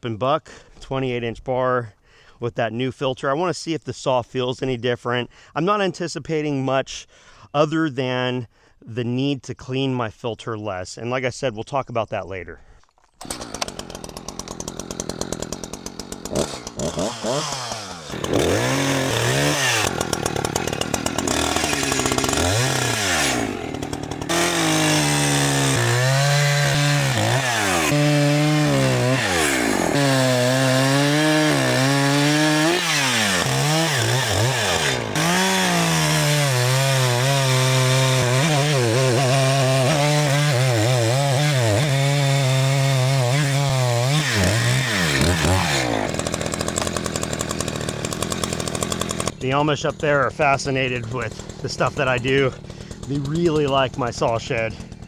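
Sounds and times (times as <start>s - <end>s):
chainsaw cutting wood: 13.1s - 55.0s.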